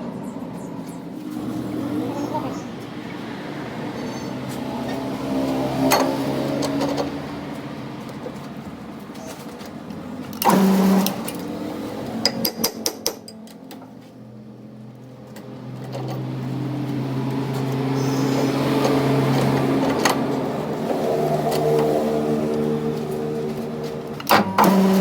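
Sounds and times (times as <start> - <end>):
machine motor humming: 10.4 - 12.2, 16.6 - 25.0.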